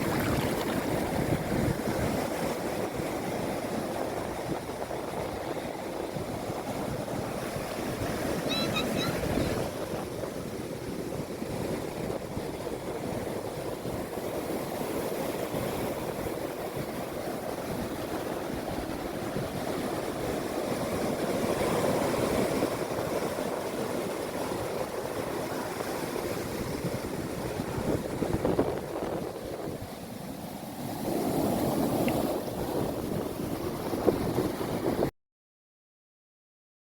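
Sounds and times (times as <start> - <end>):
sea waves washing ashore: 0.0 - 35.1.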